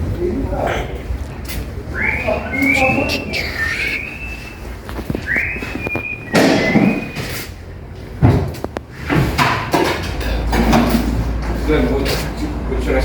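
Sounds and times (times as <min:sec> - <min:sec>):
workshop clatter: 0:00.9 - 0:13.0
person whistling: 0:01.9 - 0:07.5
metallic clunks and knocks: 0:08.2 - 0:11.6.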